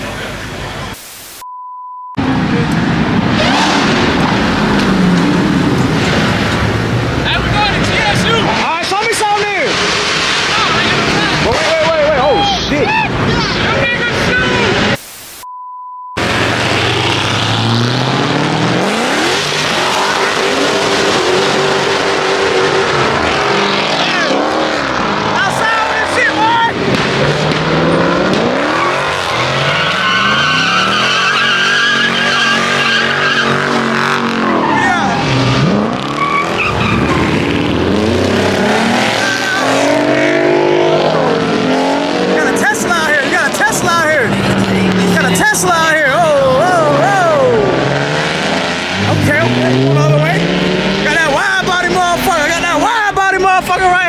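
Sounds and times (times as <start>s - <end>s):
loud steady rush of noise: 0.0s - 1.4s, 2.2s - 15.5s
censor bleep: 0.8s - 2.2s, 15.0s - 16.2s
car engine revving: 2.2s - 15.0s, 16.2s - 54.0s
tyres squealing: 28.4s - 40.3s, 41.2s - 53.4s.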